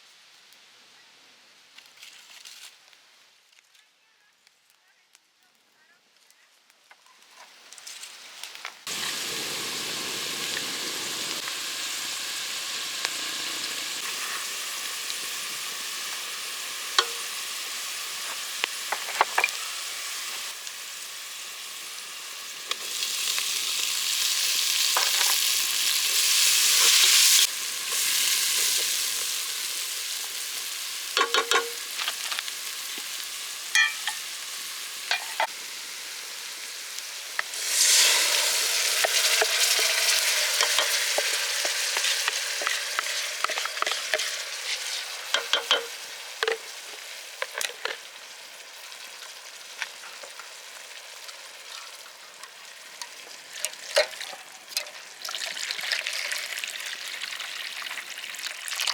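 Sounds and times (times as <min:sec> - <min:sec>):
food sizzling in hot oil: 0:07.7 - 0:58.9
utensil scraping a pot: 0:37.6 - 0:46.5.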